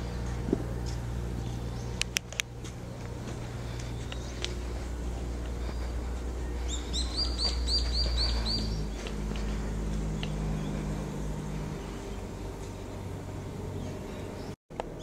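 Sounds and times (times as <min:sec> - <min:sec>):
steady low hum: 0:00.0 - 0:15.0
small bird chirping: 0:03.6 - 0:04.9, 0:05.5 - 0:12.4.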